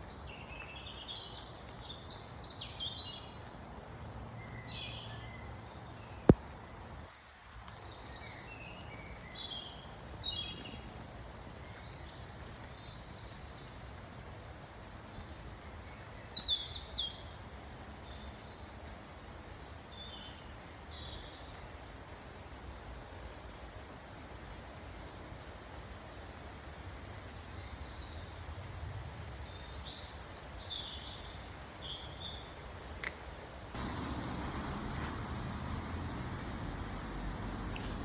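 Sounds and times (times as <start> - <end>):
rain hissing: 6.2 - 38.0
woodland birds chirping: 27.5 - 38.0.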